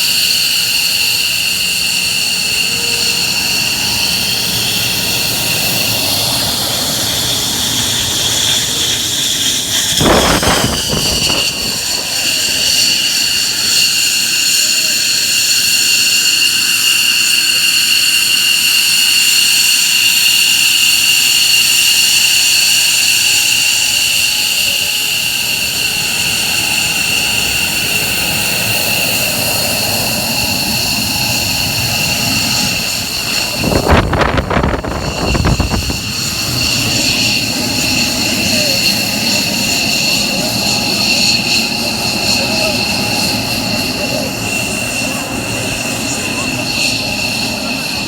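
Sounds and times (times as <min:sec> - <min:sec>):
jet engines whining: 0:00.0 - 0:48.0
loud rush of noise: 0:02.0 - 0:14.6, 0:25.2 - 0:48.0.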